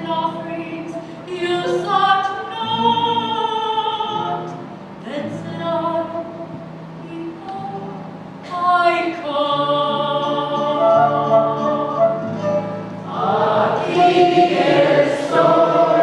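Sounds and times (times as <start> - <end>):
voices singing a slow hymn: 9.1 - 16.0
held accompaniment chords: 9.4 - 16.0.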